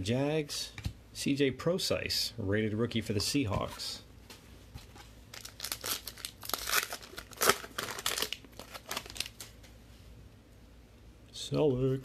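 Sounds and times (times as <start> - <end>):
plastic wrapper crinkling and tearing: 5.3 - 9.7.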